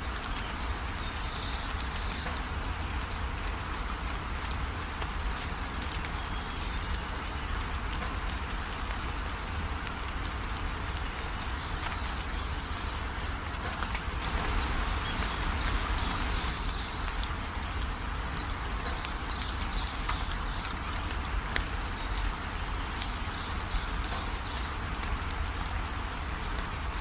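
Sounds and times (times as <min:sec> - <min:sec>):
steady rain falling: 0:00.0 - 0:27.0
birds chirping: 0:11.2 - 0:20.8.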